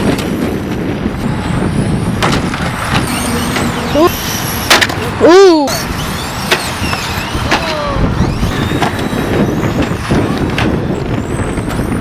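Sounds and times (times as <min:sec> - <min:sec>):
heavy rumble: 0:00.0 - 0:12.0
radio-controlled car motors whining: 0:02.9 - 0:12.0.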